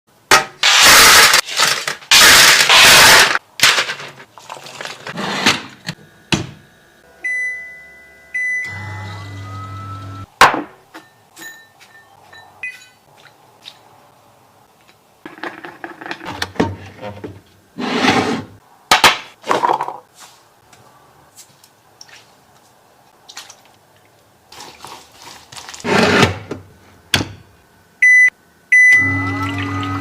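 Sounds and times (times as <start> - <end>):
appliance beep: 7.2 - 10.2, 28.0 - 30.0.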